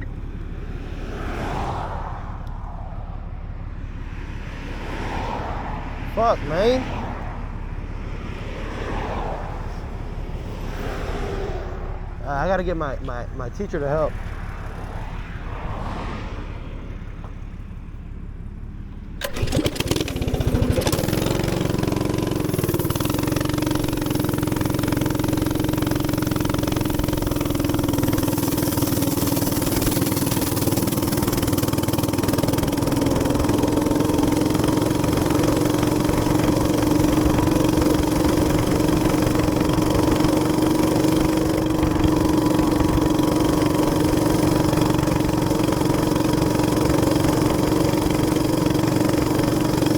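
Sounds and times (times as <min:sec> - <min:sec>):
minibike engine running: 0:16.9 - 0:49.9.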